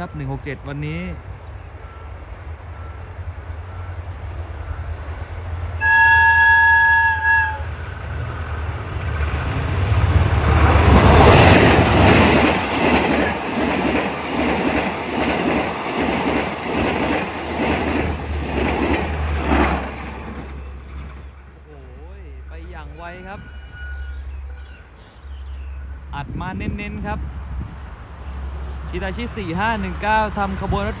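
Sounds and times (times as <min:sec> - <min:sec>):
locomotive engine passing: 0:00.0 - 0:31.0
train horn blast: 0:05.8 - 0:08.5, 0:23.3 - 0:24.9
wheels clacking over rail joints: 0:08.0 - 0:21.6.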